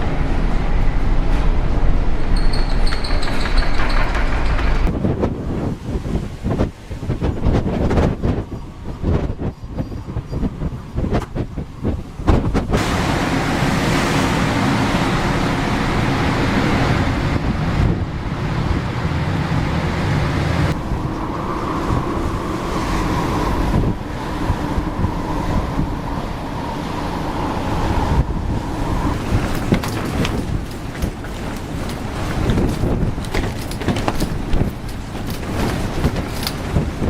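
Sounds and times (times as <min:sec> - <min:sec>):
low engine rumble: 0:00.0 - 0:05.6, 0:11.4 - 0:37.0
wind: 0:00.0 - 0:37.0
breaking waves: 0:11.0 - 0:37.0.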